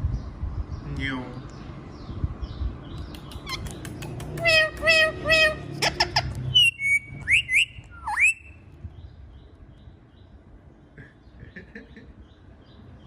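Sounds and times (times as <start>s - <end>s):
parrot clicks: 3.0s - 5.0s
parrot harsh calls: 4.4s - 8.5s
parrot whistling: 4.4s - 8.6s.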